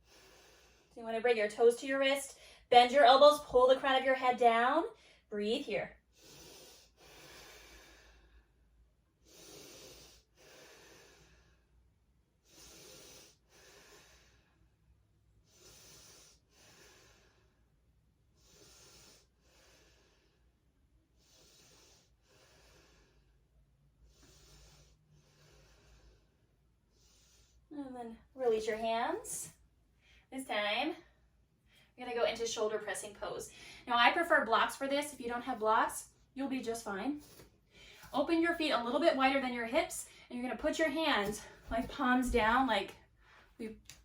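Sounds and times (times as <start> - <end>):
person breathing slowly: 0.0 - 1.0, 6.1 - 14.8, 15.4 - 17.8, 18.4 - 27.7.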